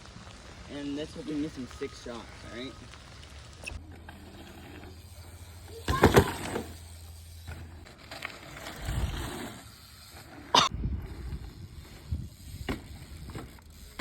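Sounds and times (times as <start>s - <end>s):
bike knocks and clatter: 5.6s - 8.3s, 12.5s - 14.0s.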